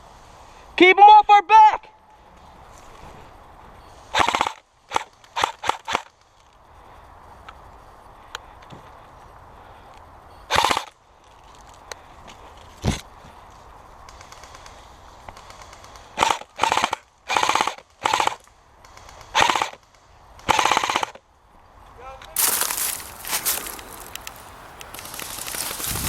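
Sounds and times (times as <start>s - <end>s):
airsoft guns firing bursts: 4.1s - 6.1s, 10.5s - 10.9s, 14.1s - 21.2s.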